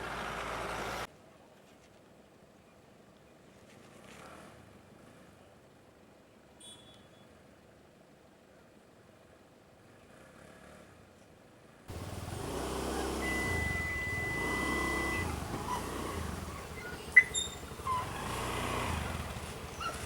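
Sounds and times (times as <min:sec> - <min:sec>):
vehicle engine running: 0:11.9 - 0:20.0
steady high tone: 0:12.8 - 0:17.4.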